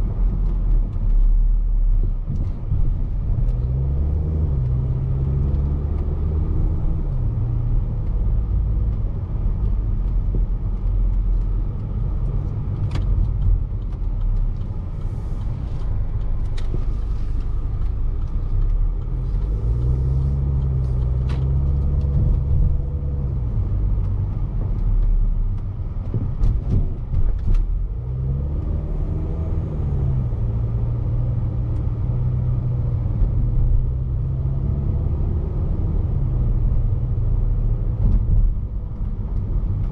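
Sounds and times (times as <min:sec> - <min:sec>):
car going over bumps: 0:00.0 - 0:39.9
road and tyre rumble: 0:00.0 - 0:39.9
car engine running: 0:04.2 - 0:28.0.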